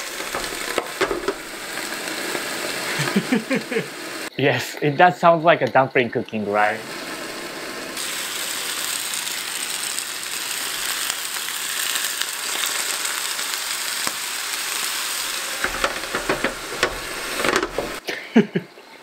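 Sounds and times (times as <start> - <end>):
water poured onto hot plate: 0.0 - 4.0
dumplings sizzling in oil: 0.0 - 5.2, 6.1 - 18.0
lid clicking: 15.6 - 18.0.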